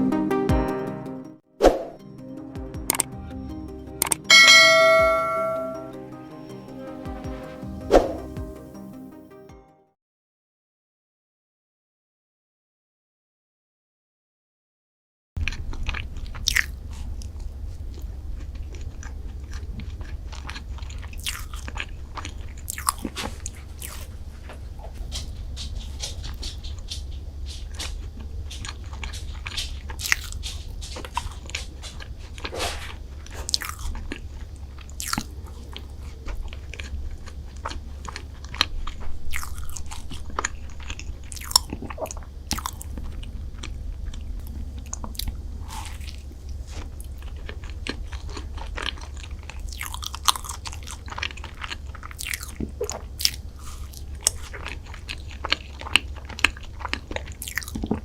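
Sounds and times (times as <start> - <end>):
low hum: 2.0 - 9.0, 33.0 - 49.8
biting and chewing: 15.4 - 58.0.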